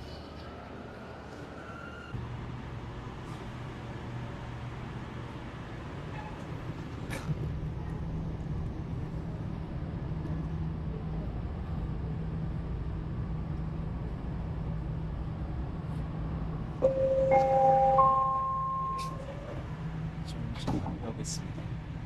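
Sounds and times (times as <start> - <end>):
train low hum: 0.0 - 22.0
rising chime tones: 16.8 - 19.3.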